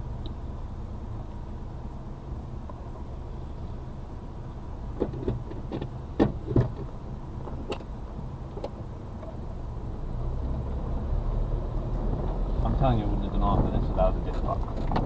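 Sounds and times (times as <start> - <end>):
sharp knocks and rattles in cab: 4.9 - 7.9, 13.6 - 15.0.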